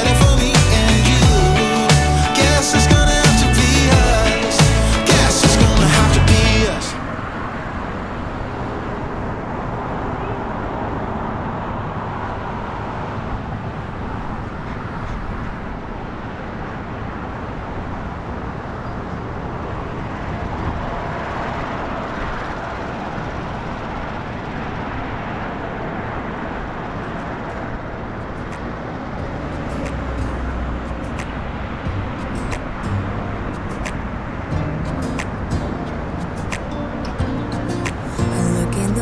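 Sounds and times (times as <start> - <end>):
street traffic passing: 0.0 - 39.0.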